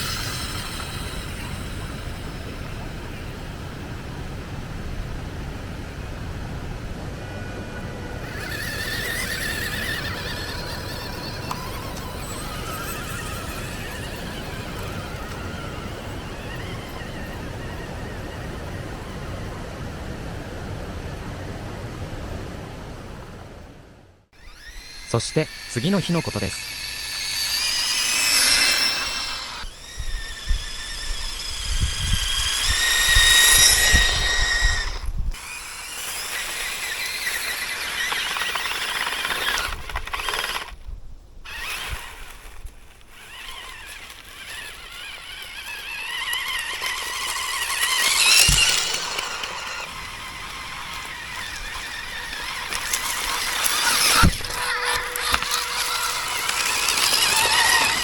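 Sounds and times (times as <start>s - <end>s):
toy car electric motor whining: 0.0s - 3.0s, 8.1s - 19.5s, 24.4s - 58.0s
low rumble: 28.8s - 35.4s.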